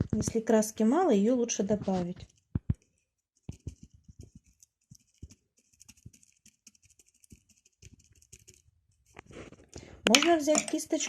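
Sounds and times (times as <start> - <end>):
paintbrush dabbing and scraping on paper: 1.5 - 9.7.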